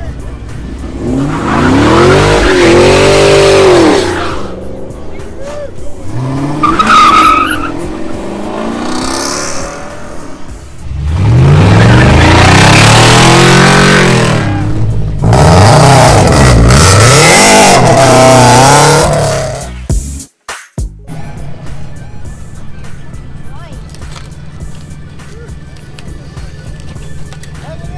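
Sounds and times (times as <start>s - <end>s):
car engine revving hard: 0.6s - 4.6s, 6.0s - 19.7s
tyres spinning and squealing: 0.6s - 9.9s, 10.9s - 19.6s.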